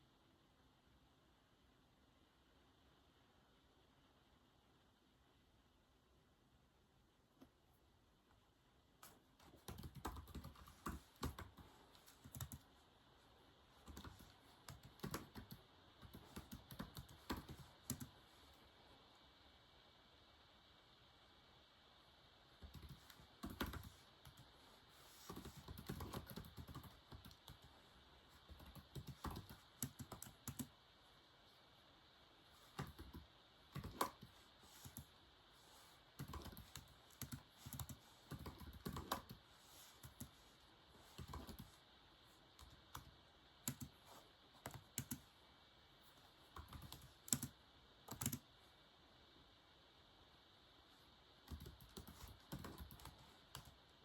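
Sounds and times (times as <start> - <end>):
typing on a keyboard: 9.4 - 12.7, 13.8 - 18.1, 22.6 - 24.5, 25.2 - 27.7, 28.5 - 30.7, 32.7 - 35.1, 36.2 - 39.4, 41.1 - 41.7, 42.6 - 44.0, 44.6 - 45.2, 46.6 - 48.4, 51.5 - 53.8.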